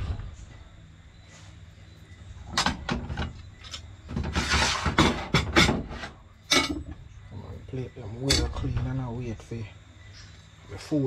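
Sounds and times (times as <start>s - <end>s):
scraping rustle: 2.9s - 6.3s.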